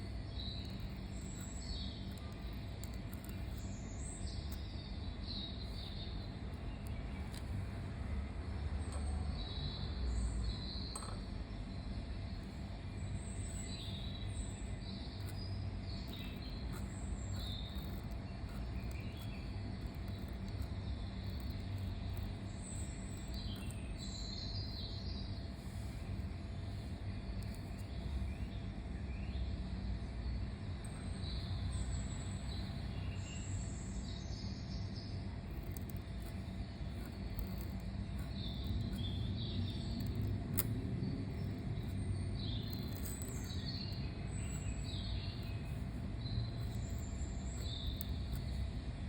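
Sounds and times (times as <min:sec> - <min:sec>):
pen scratching on paper: 0:00.0 - 0:03.7, 0:16.0 - 0:24.1, 0:35.5 - 0:48.8
steady low rumble: 0:00.0 - 0:49.0.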